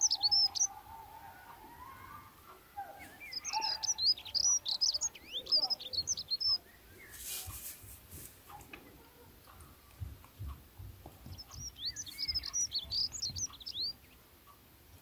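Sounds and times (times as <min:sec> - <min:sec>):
small birds chirping: 0:00.0 - 0:15.0
soft hiss: 0:05.1 - 0:15.0.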